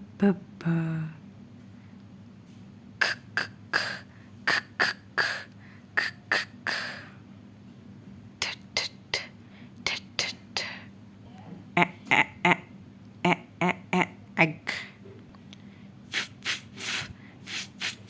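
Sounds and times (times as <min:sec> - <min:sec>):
woman sounding out letters: 0:11.3 - 0:14.9.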